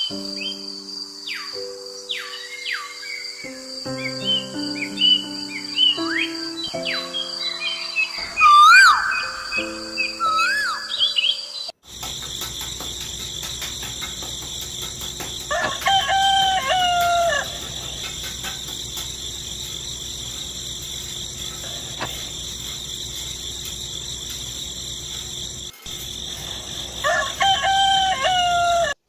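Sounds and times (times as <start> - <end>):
crickets chirping: 0.0 - 29.0
rooster crowing: 15.5 - 18.1, 26.5 - 29.0.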